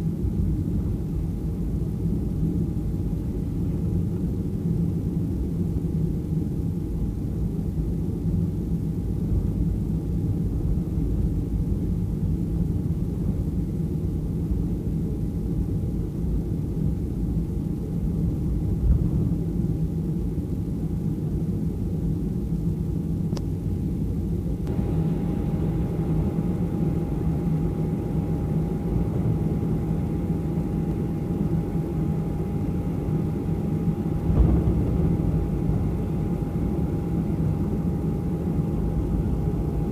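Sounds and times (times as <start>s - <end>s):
aircraft cabin rumble: 0.0s - 39.9s
faint engine whine: 0.0s - 39.9s
bumps of rolling jet: 18.4s - 20.0s, 24.7s - 39.9s.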